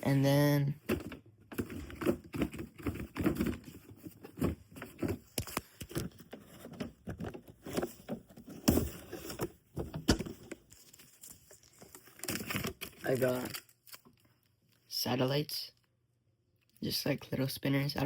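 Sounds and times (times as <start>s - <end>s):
cardboard and plastic rustling: 0.8s - 14.4s.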